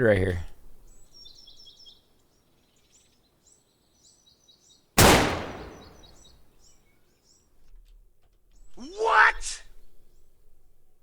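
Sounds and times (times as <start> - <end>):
small birds chirping: 0.0 - 7.5
loud gunshot: 5.0 - 6.2.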